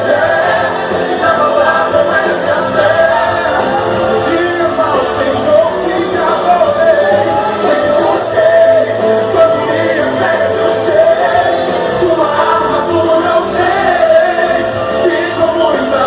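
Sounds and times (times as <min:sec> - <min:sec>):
gospel song with band: 0:00.0 - 0:16.0.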